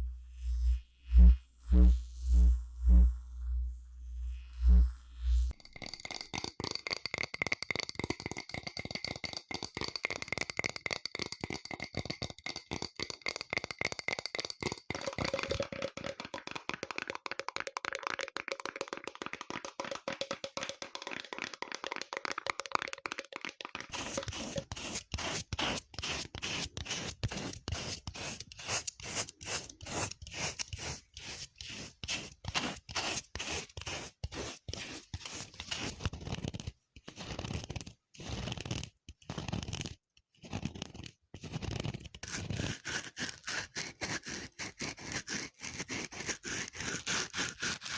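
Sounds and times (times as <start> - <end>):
crackling and scratching on objects: 14.5 - 47.9.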